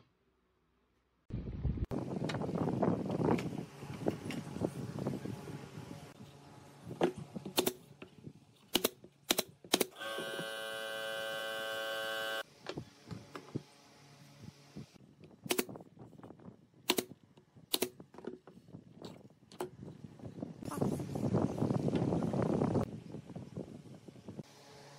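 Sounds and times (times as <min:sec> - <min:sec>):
steady electric hum: 0:10.0 - 0:12.4.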